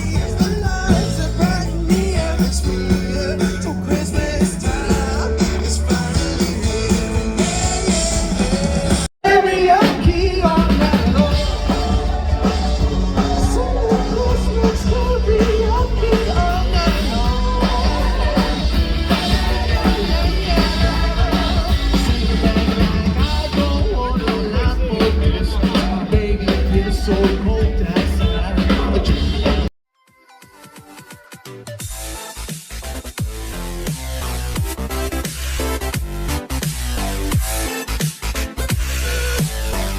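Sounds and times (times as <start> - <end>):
person singing: 0.0 - 29.6
live rock band playing: 0.0 - 29.7.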